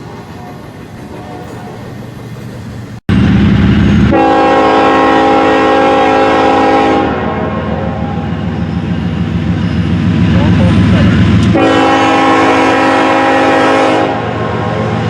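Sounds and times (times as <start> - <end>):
diesel locomotive rumble: 0.0 - 15.0
train horn: 4.1 - 8.3, 11.5 - 15.0.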